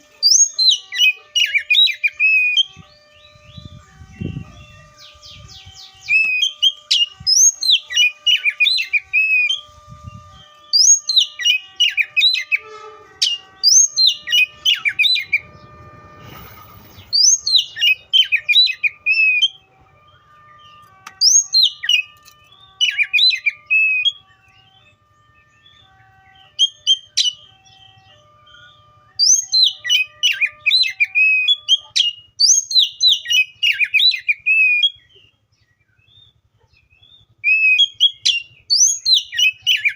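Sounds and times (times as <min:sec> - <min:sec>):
bird whistling song: 0:00.0 - 0:39.9.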